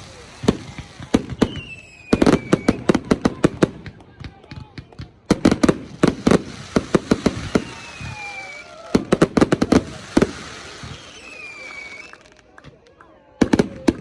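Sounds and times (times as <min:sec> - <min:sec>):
fireworks bangs and pops: 0:00.0 - 0:14.0
firework falling whistle: 0:01.3 - 0:02.9, 0:07.2 - 0:12.3.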